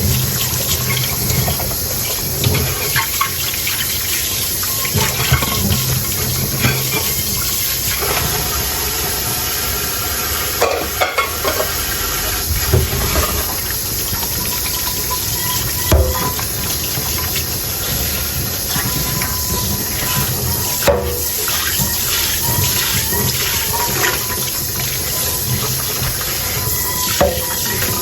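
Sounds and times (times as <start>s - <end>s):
tap water running into sink: 0.0s - 28.0s
tableware knocking: 10.6s - 11.8s.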